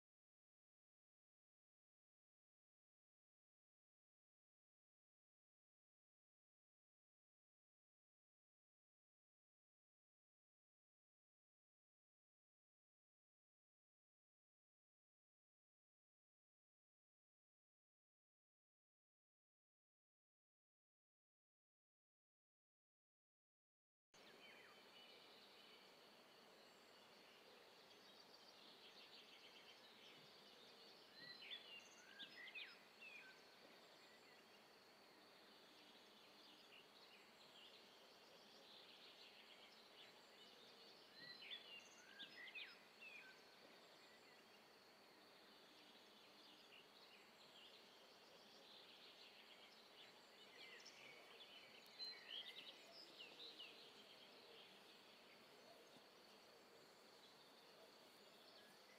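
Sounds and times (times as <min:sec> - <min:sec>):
birds chirping: 0:24.2 - 0:58.9
steady low hiss: 0:24.2 - 0:58.9.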